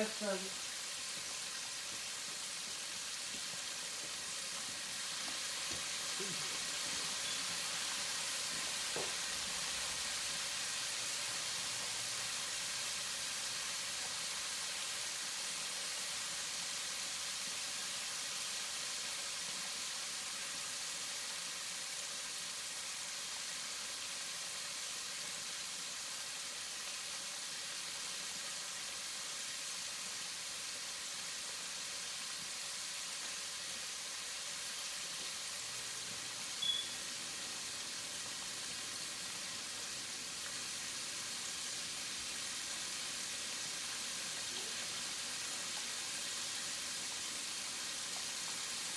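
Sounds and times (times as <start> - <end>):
chicken wings sizzling in oil: 0.0 - 48.9.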